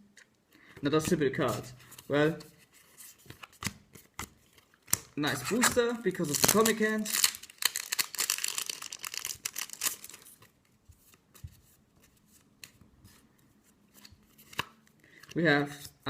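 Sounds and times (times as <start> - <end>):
cards being handled: 0.7 - 16.0
foil wrapper crinkling and tearing: 6.2 - 10.4.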